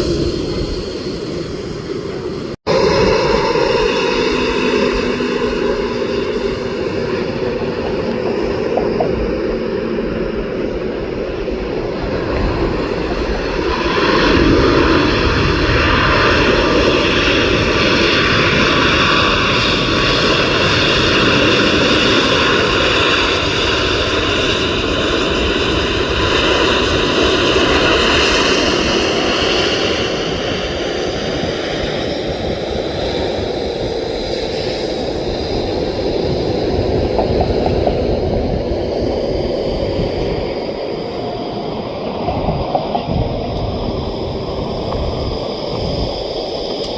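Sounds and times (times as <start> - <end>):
jet engines passing with whine: 0.0 - 46.9.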